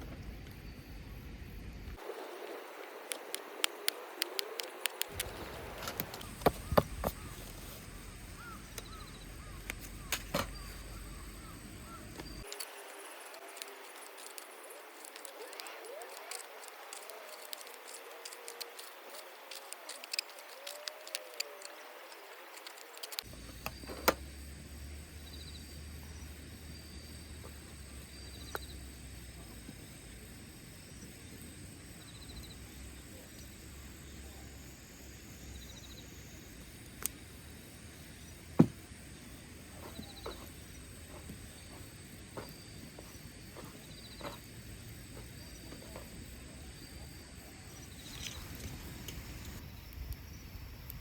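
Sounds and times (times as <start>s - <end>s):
campfire crackling: 2.0s - 10.3s, 11.7s - 23.4s.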